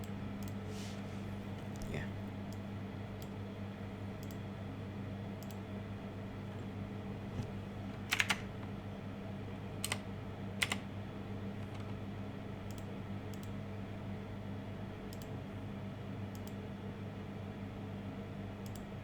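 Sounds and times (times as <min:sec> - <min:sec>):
computer keyboard keystrokes: 0:00.0 - 0:00.6, 0:04.2 - 0:04.4, 0:05.4 - 0:05.6, 0:07.4 - 0:08.8, 0:09.8 - 0:10.9, 0:11.6 - 0:12.0, 0:12.7 - 0:13.6, 0:15.1 - 0:15.3, 0:16.3 - 0:16.6, 0:18.6 - 0:18.9
low electrical hum: 0:00.0 - 0:19.0.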